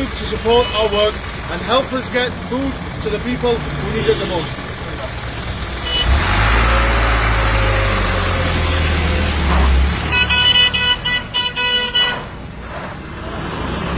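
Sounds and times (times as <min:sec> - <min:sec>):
truck engine rumbling: 0:00.0 - 0:13.9
vehicle horn blasts: 0:05.8 - 0:06.3, 0:10.1 - 0:12.3.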